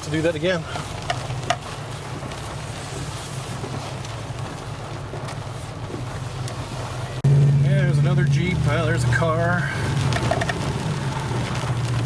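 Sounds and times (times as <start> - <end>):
truck engine and road drone: 0.0 - 12.0
tyre and wind noise: 1.0 - 7.4.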